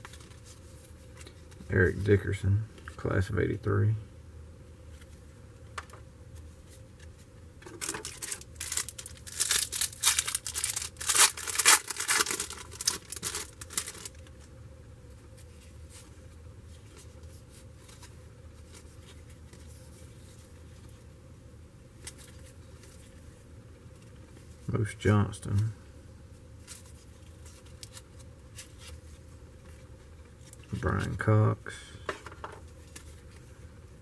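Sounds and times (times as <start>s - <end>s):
wrapper tearing and crinkling: 7.7s - 14.3s.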